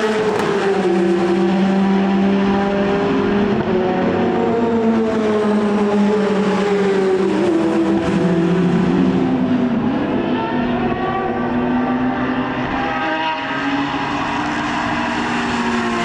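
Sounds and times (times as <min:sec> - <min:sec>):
racing car engine: 0:00.0 - 0:16.0.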